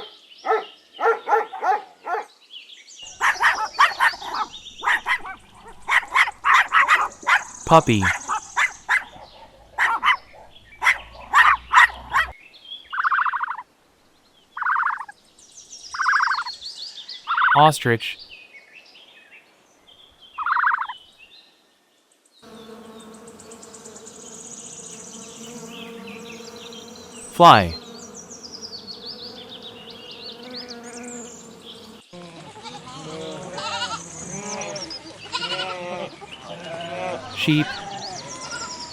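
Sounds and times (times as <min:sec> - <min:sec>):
puppy yelping: 0:00.0 - 0:02.3
housefly buzzing: 0:22.5 - 0:32.1.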